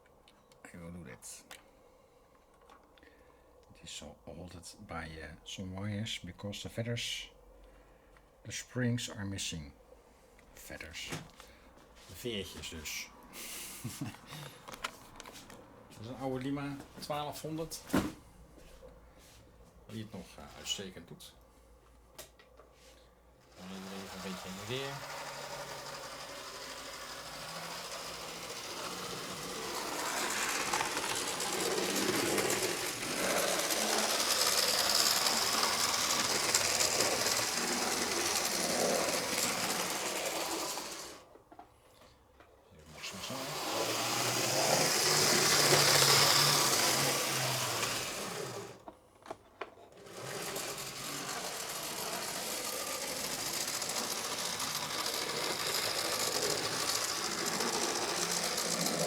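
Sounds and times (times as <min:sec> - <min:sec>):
model train motor whirring: 0:23.4 - 0:41.3, 0:42.9 - 0:48.9, 0:49.9 - 0:59.0.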